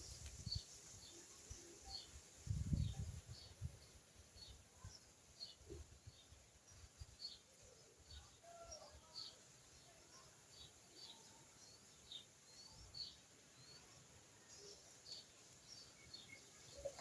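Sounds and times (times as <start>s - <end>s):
birds chirping: 10.1s - 17.0s.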